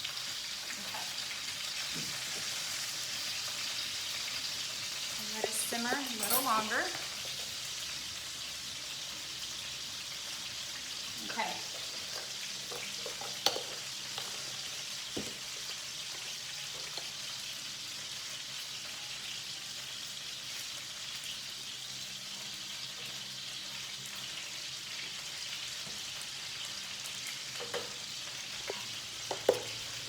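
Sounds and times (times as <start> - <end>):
chicken sizzling in a pan: 0.0 - 30.0.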